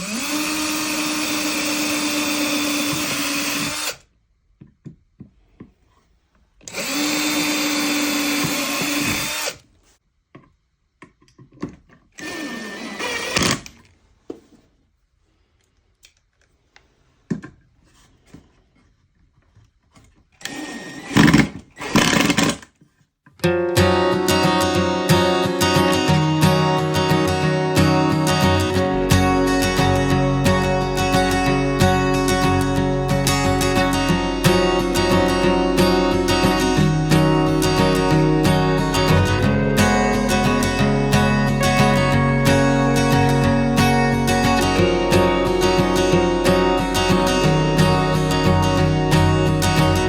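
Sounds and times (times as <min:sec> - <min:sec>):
electric drill whine: 0:00.0 - 0:04.0, 0:06.7 - 0:09.6, 0:12.2 - 0:13.7, 0:20.4 - 0:22.5.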